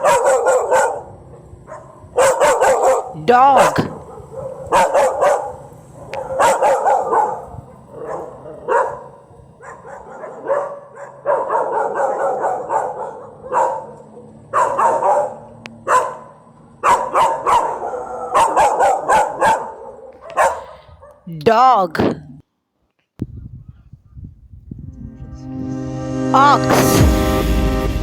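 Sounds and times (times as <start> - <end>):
dog barking: 0.0 - 21.3.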